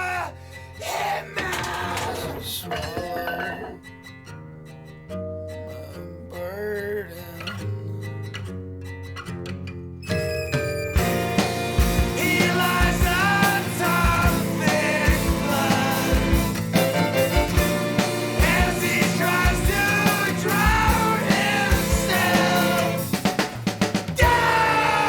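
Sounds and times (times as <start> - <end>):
bending lead guitar line: 10.4 - 25.0
drum kit: 10.6 - 25.0
rock band playing: 10.9 - 25.0.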